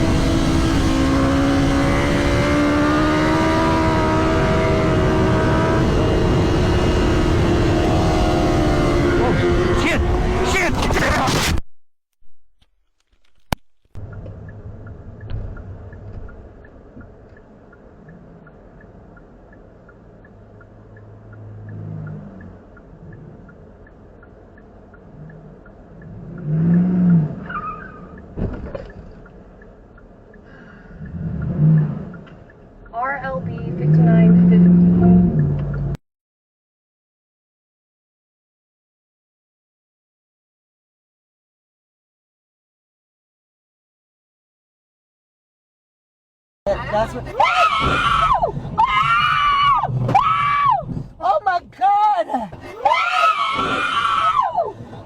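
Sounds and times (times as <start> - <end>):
road and wind noise: 0.0 - 11.6, 13.1 - 36.0, 46.7 - 55.0
tyre squeal: 27.4 - 28.2.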